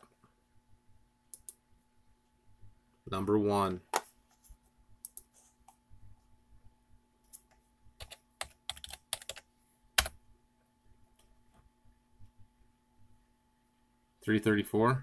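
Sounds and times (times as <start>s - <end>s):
faint electrical hum: 0.0s - 15.0s
typing on computer keyboard: 8.0s - 10.2s.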